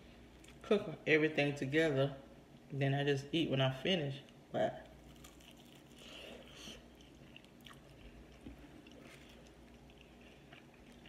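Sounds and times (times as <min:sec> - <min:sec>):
person chewing: 0:04.3 - 0:11.0.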